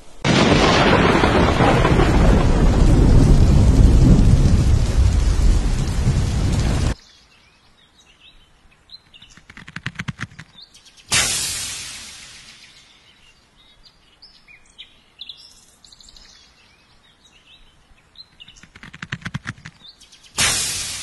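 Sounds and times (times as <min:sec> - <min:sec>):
birds chirping faintly: 0:06.9 - 0:11.1, 0:11.8 - 0:20.4
quick clicks: 0:09.1 - 0:10.6, 0:18.4 - 0:20.6
sudden loud burst: 0:11.1 - 0:12.6, 0:20.4 - 0:21.0.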